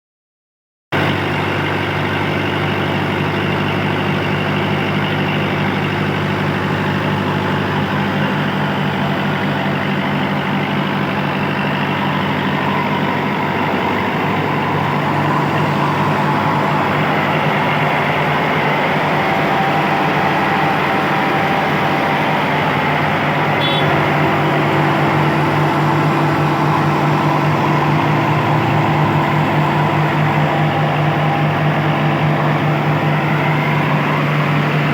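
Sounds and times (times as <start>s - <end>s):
tractor engine running under load: 1.0s - 34.9s
rice mill mechanical noise: 14.2s - 34.9s.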